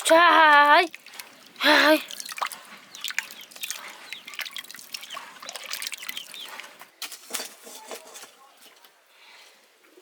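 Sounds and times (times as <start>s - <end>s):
water trickling and dripping: 0.0s - 6.8s.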